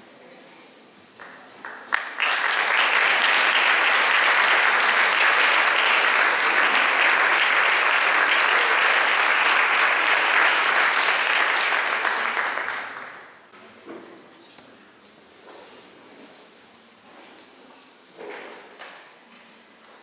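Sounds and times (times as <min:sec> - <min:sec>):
audience applauding: 0:01.2 - 0:13.5.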